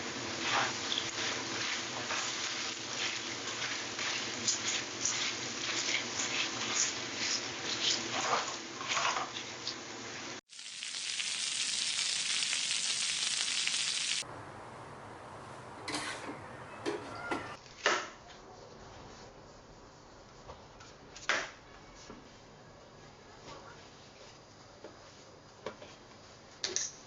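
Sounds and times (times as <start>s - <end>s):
food sizzling in a pan: 0.0s - 14.3s.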